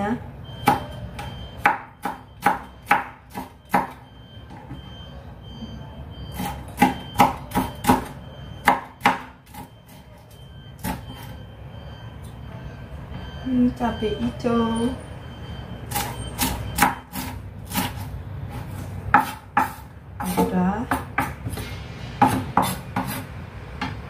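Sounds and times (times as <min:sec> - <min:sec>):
knife chopping on cutting board: 0:19.1 - 0:21.6, 0:22.2 - 0:23.2.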